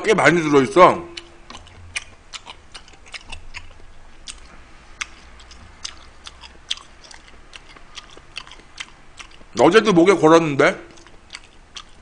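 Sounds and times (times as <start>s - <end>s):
person chewing wetly: 1.1s - 9.6s, 10.9s - 12.0s.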